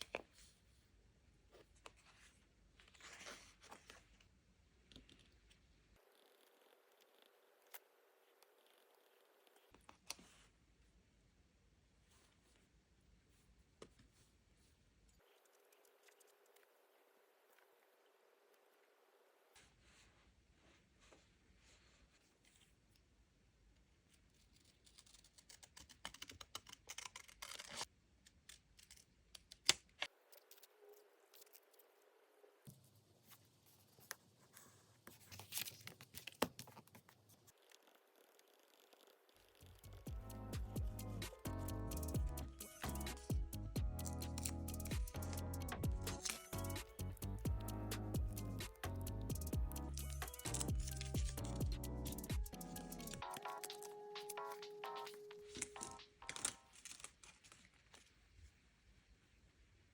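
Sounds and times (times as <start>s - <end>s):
paper rustling: 1.6s - 4.3s, 33.2s - 37.9s, 48.4s - 58.4s.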